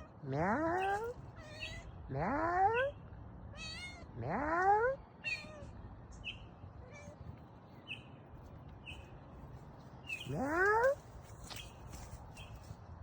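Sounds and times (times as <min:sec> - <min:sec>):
kitten meowing: 0:03.6 - 0:04.1, 0:05.2 - 0:05.7.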